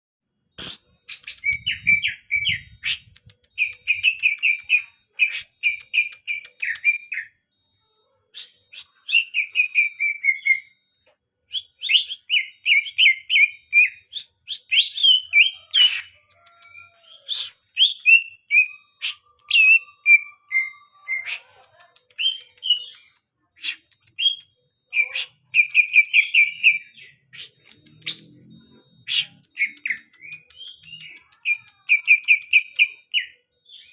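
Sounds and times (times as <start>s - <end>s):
bird chattering and warbling: 0.6s - 7.0s, 14.1s - 33.4s.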